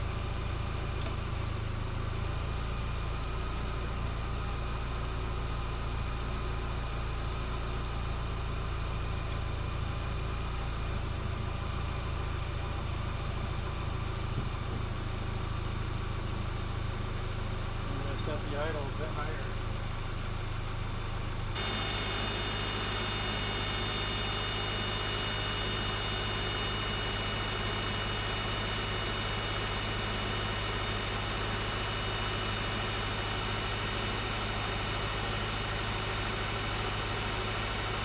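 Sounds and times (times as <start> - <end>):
car engine idling: 0.0 - 38.0
high-pitched whine: 21.5 - 38.0.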